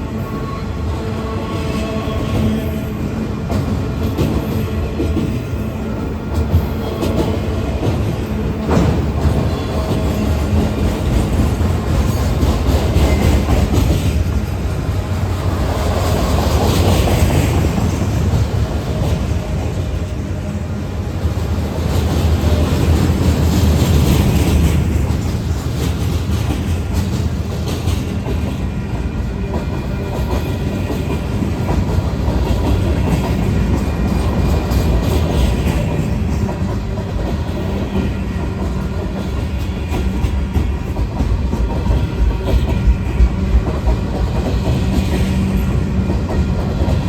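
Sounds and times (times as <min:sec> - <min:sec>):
freight train rumble: 0:00.0 - 0:47.0.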